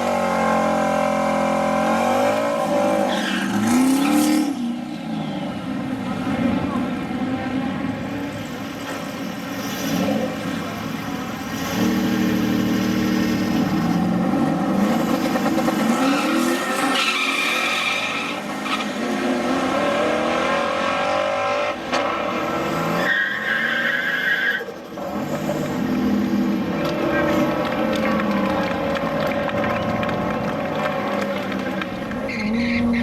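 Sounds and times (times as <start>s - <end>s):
car engines revving hard: 0.0s - 33.0s
tyre squeal: 16.0s - 18.9s, 22.1s - 25.8s, 32.2s - 33.0s.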